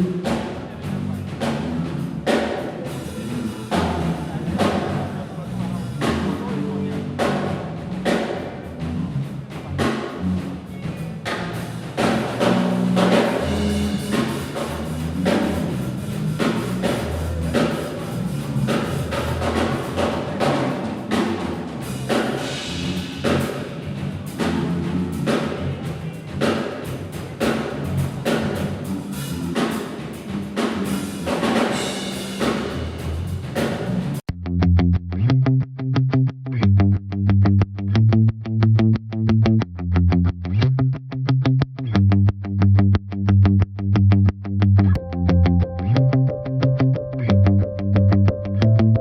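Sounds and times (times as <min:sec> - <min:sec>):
different music: 0:00.0 - 0:34.2, 0:44.9 - 0:49.0
drum kit rapid hits: 0:00.0 - 0:34.2
low pitched notes: 0:00.0 - 0:49.0.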